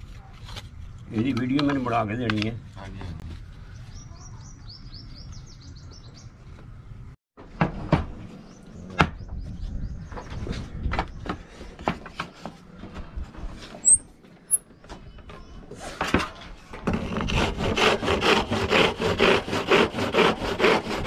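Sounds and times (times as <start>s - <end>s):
small bird chirping: 3.7s - 6.4s, 13.8s - 15.6s.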